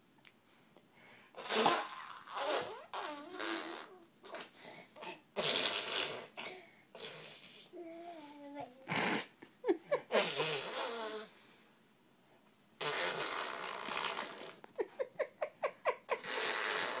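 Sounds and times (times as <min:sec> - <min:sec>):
baby blowing raspberries: 0:01.4 - 0:07.8, 0:10.1 - 0:11.4, 0:12.8 - 0:14.7, 0:16.1 - 0:17.0.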